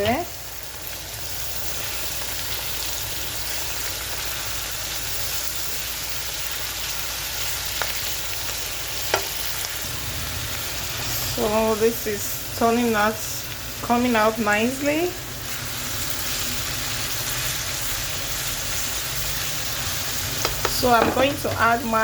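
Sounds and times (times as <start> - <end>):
vegetables sizzling in a pan: 0.0 - 22.0.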